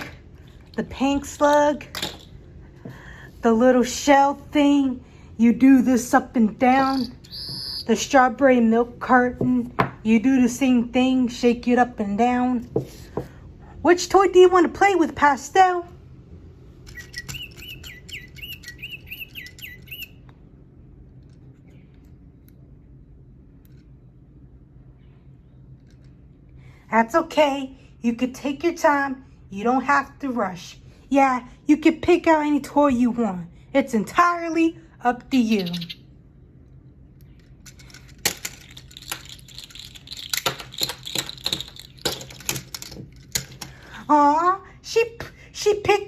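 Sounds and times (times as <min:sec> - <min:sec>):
low steady hum: 0:00.0 - 0:46.0
small bird chirping: 0:06.8 - 0:07.9, 0:16.9 - 0:20.2, 0:35.5 - 0:36.1
small objects clicking and rattling: 0:37.2 - 0:43.7.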